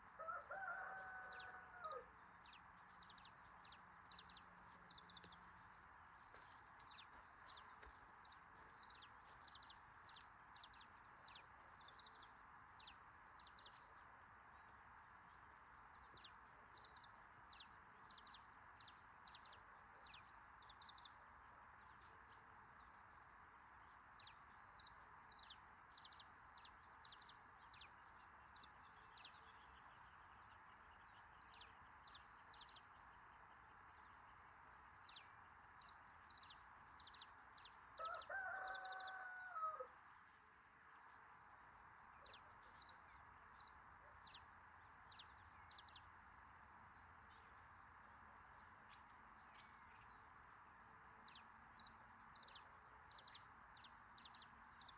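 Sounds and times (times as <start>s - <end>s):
background hiss: 0.0s - 54.9s
small bird chirping: 0.0s - 54.9s
rooster crowing: 0.2s - 2.1s, 38.0s - 39.9s.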